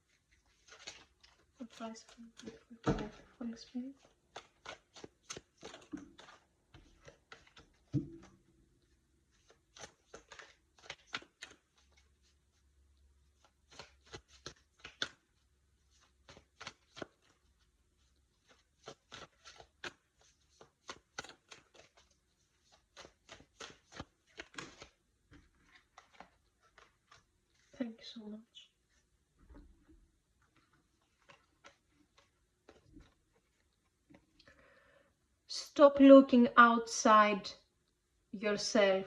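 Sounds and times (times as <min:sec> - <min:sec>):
cards being shuffled: 0:00.1 - 0:12.6, 0:13.2 - 0:27.8, 0:30.4 - 0:34.5.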